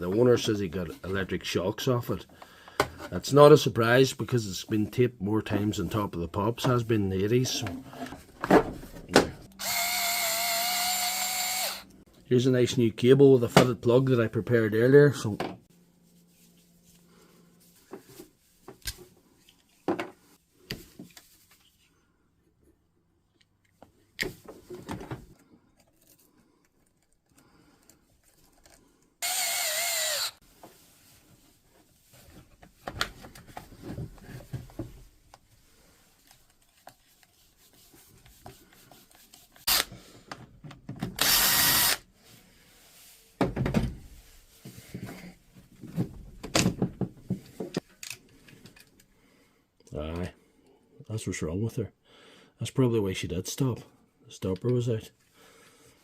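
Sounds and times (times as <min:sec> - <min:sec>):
power drill-driver running: 0:09.5 - 0:11.9, 0:29.2 - 0:30.4, 0:39.7 - 0:39.9, 0:41.2 - 0:42.0.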